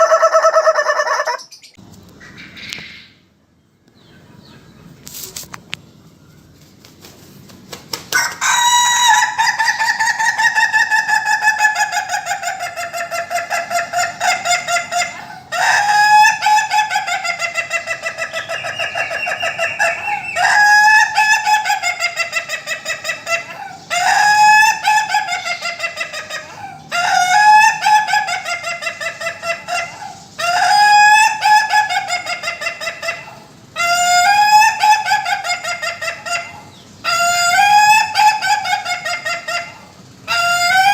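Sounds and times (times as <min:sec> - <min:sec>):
rooster crowing in stuttering chatter: 0:08.2 - 0:10.2.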